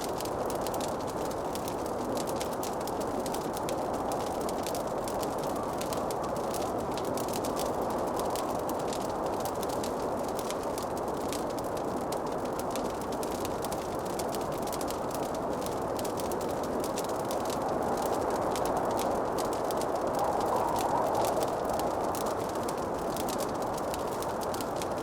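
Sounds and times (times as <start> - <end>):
wood fire crackling: 0.0 - 25.0
steady rushing hiss: 13.8 - 25.0.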